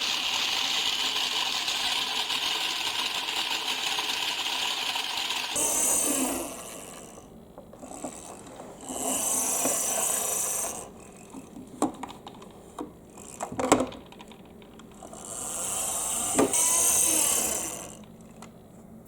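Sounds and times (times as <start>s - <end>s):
balls rolling down marble run: 0.0s - 7.2s, 7.8s - 18.2s
balls clacking against track: 7.6s - 17.2s.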